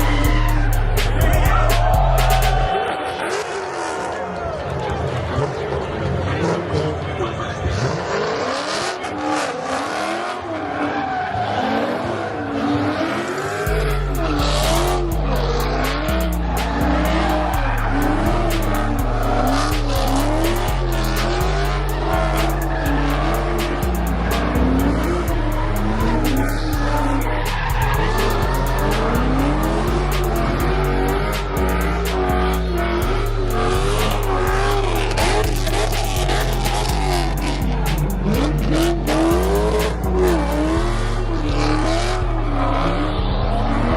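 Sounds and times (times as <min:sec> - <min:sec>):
music with deep bass and hi-hats: 0:00.0 - 0:02.7, 0:13.1 - 0:43.9
car engine revving: 0:00.0 - 0:04.4, 0:05.2 - 0:43.9
tires squealing: 0:00.0 - 0:43.9.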